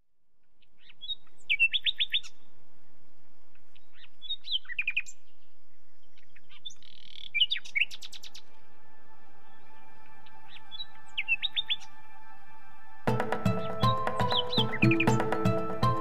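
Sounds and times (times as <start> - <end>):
small bird chirping: 0.4 - 2.4, 3.6 - 8.5, 13.5 - 15.6
soft sustained music notes: 7.4 - 16.0.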